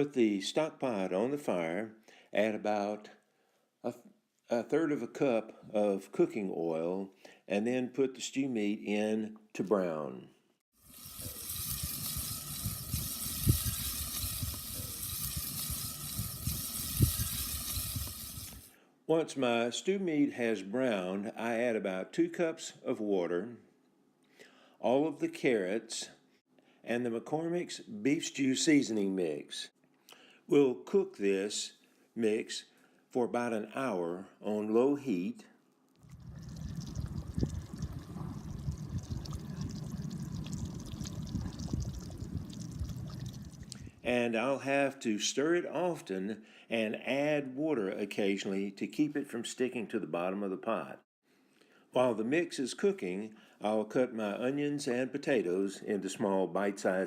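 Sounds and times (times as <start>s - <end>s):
meat sizzling in oil: 10.8s - 18.7s, 36.1s - 43.7s
stew bubbling in a pot: 10.8s - 18.7s, 36.0s - 44.0s
oil popping: 10.9s - 18.6s, 36.0s - 43.9s.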